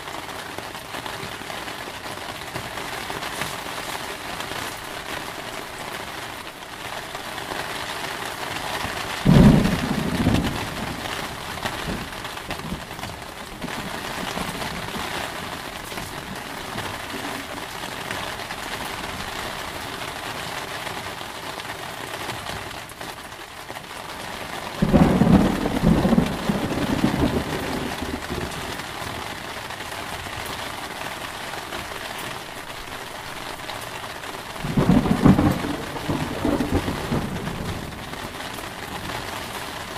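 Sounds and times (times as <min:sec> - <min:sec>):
heavy rain: 0:00.0 - 0:39.9
thunder rumbling: 0:08.9 - 0:19.4, 0:24.7 - 0:29.4, 0:34.4 - 0:39.9.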